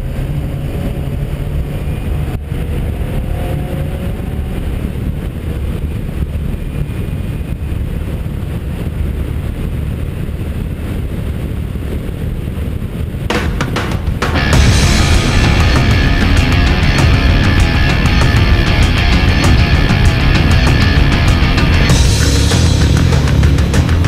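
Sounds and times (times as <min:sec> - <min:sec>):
wind and road noise: 0:00.0 - 0:24.0
car engine running: 0:13.3 - 0:24.0.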